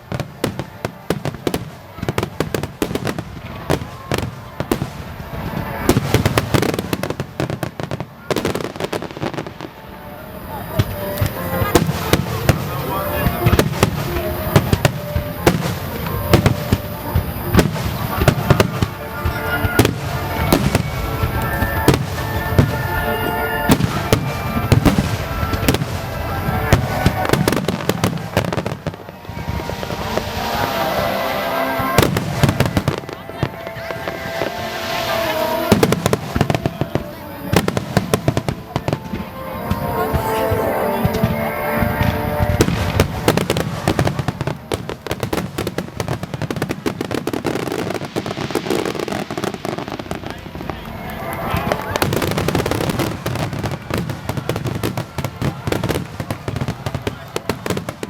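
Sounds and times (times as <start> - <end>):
background music: 0.0 - 58.0
fireworks bursting: 0.0 - 58.0.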